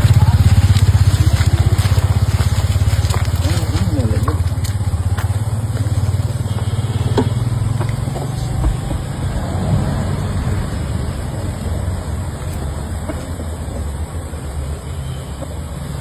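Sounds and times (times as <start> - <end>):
small engine chugging: 0.0 - 9.3.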